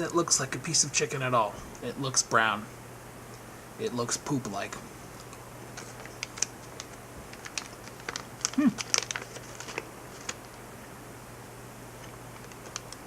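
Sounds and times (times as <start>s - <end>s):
plastic pouch crinkling: 5.2s - 10.6s, 12.0s - 13.0s.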